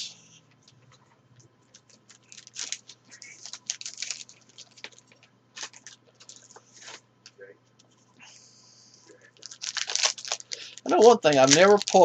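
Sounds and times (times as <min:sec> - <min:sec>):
foil wrapper tearing and crinkling: 0:01.8 - 0:06.5, 0:09.4 - 0:12.0.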